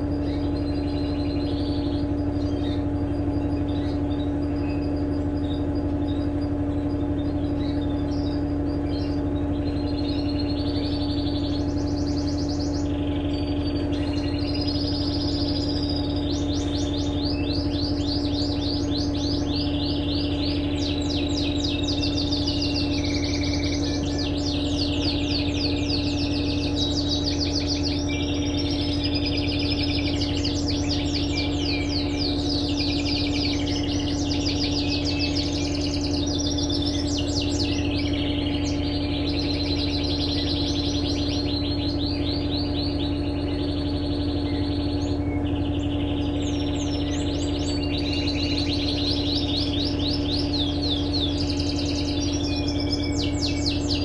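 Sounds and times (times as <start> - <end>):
flock of birds chirping: 0.0 - 54.0
low mechanical hum: 0.0 - 54.0.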